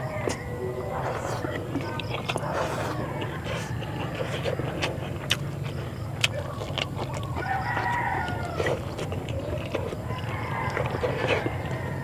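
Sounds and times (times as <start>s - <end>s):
mouth clicks while chewing: 0.0s - 12.0s
steady low hum: 0.0s - 12.0s
rooster crowing: 3.0s - 4.8s, 7.2s - 12.0s.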